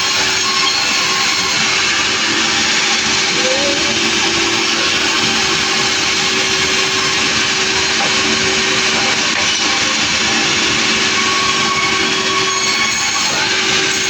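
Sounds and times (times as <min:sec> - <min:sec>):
sawmill machine noise: 0:00.0 - 0:14.0
steady hum: 0:02.2 - 0:09.3.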